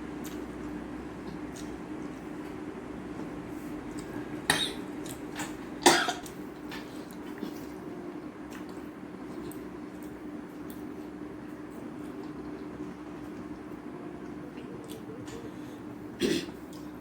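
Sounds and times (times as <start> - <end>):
person coughing: 5.9 - 6.3, 16.2 - 16.6.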